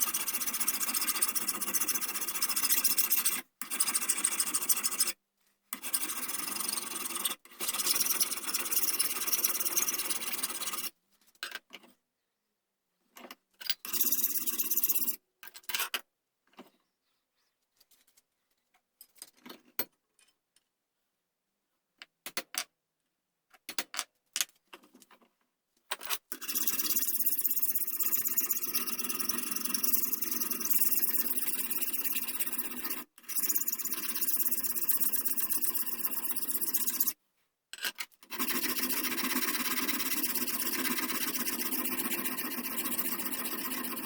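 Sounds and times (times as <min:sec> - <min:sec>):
tool scraping on wood: 0:05.8 - 0:10.9, 0:26.4 - 0:37.2, 0:38.3 - 0:44.0.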